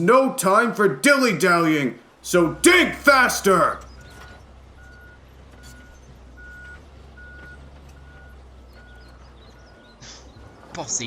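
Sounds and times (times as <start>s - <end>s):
low engine rumble: 0.0s - 11.0s
reversing alarm beeping: 4.8s - 9.9s.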